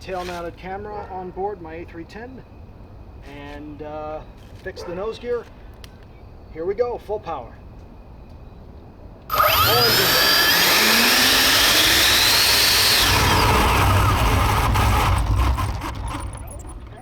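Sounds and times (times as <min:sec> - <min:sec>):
electric ducted fans whining: 0:09.1 - 0:17.0.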